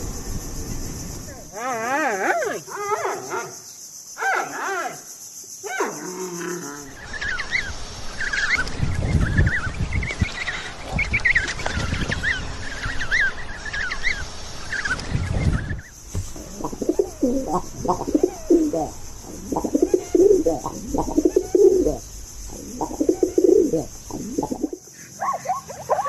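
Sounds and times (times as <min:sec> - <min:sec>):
steady high hiss: 0:00.0 - 0:26.0
flock of birds chirping: 0:06.8 - 0:26.0
drawn-out animal calls: 0:16.3 - 0:25.6.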